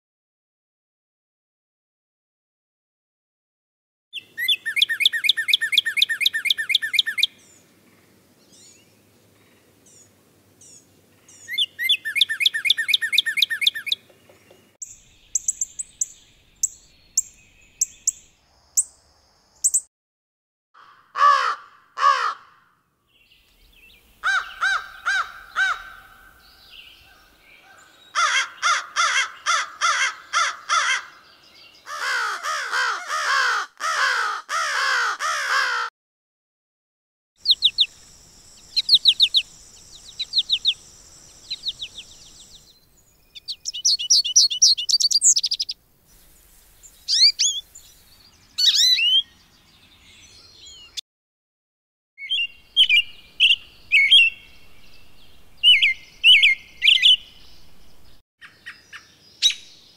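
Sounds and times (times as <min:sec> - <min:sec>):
crow cawing: 0:20.8 - 0:22.8, 0:24.2 - 0:26.4, 0:27.1 - 0:31.2, 0:31.9 - 0:35.9
birds trilling: 0:23.7 - 0:35.8, 0:37.4 - 0:45.8, 0:46.8 - 0:49.4, 0:52.2 - 0:59.7
high thin bird calls: 0:37.4 - 0:49.3, 0:52.2 - 0:54.6, 0:55.6 - 0:59.8.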